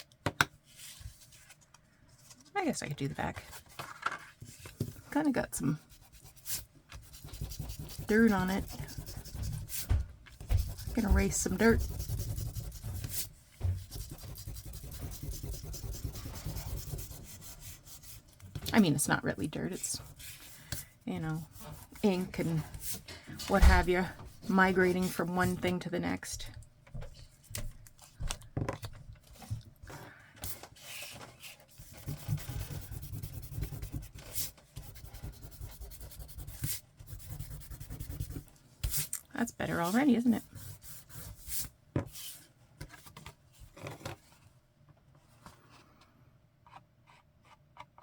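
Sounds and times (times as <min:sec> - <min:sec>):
eraser rubbing on paper card: 0:05.8 - 0:18.2, 0:31.8 - 0:39.0.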